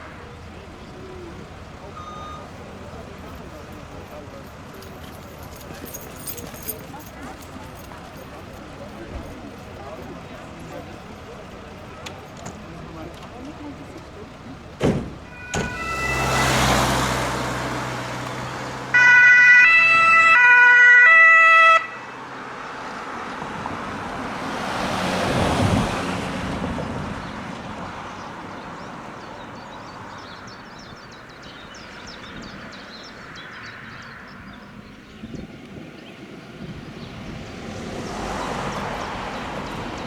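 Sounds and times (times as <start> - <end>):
two-tone emergency vehicle horn: 2.0 - 2.5, 15.3 - 17.4, 18.9 - 22.3
vehicle driving past: 15.7 - 19.0.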